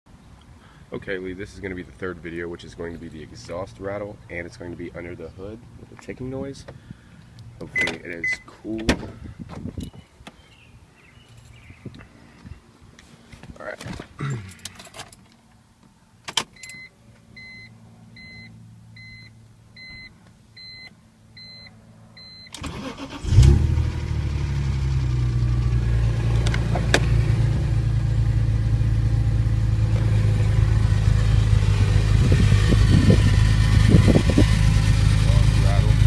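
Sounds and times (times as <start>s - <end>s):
car engine starting and idling: 22.2s - 36.0s.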